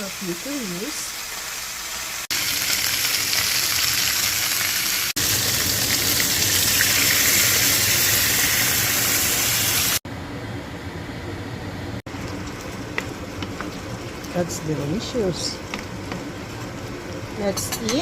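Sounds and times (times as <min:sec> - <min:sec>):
chicken sizzling in a pan: 0:00.0 - 0:10.0.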